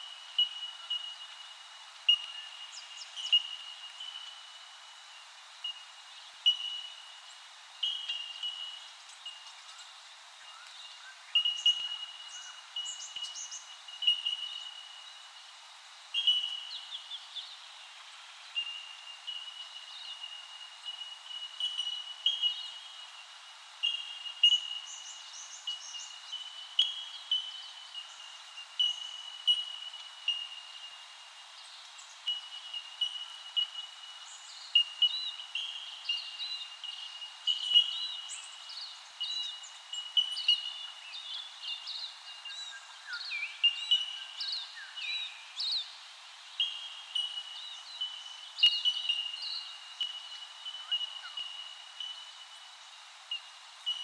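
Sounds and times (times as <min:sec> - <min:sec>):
wild birds chirping: 0:00.0 - 0:05.0, 0:05.6 - 0:54.0.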